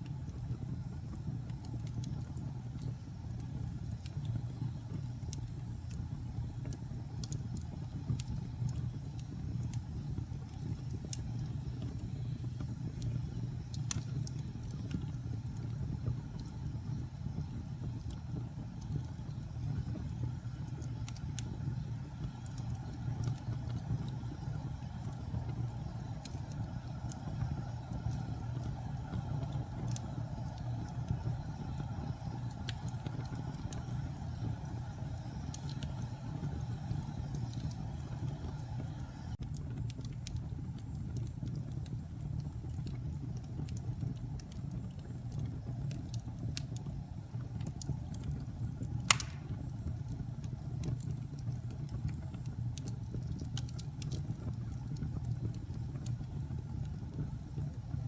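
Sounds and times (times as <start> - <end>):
fire crackling: 0.0 - 58.0
fire flames rumbling: 0.0 - 58.0
sharp pop of fire: 49.1 - 49.7.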